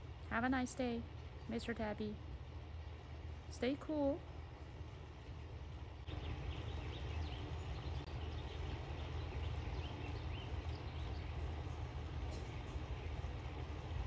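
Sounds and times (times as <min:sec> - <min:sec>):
small birds chirping: 0:06.0 - 0:14.0.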